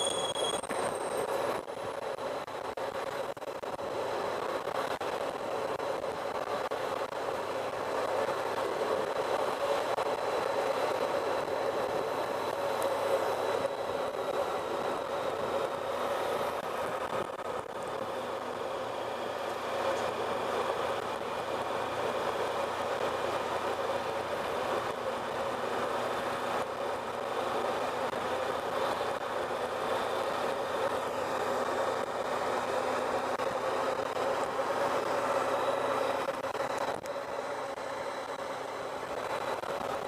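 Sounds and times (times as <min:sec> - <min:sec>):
road and wind noise: 0:00.0 - 0:40.0.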